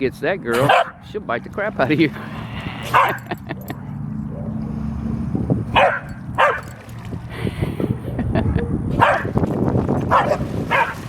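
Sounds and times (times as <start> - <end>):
dog barking: 0.6 - 1.0, 2.9 - 3.2, 5.7 - 6.8, 9.0 - 9.3, 10.1 - 11.0
wind rumble on microphone: 4.2 - 11.0.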